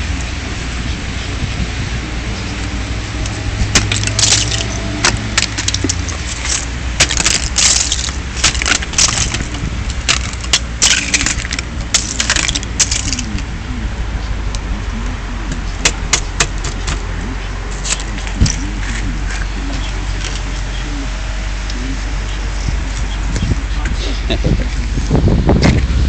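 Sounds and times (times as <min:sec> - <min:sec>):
steady low rumble: 0:00.0 - 0:26.0
ice clinking and crackling: 0:03.7 - 0:13.5.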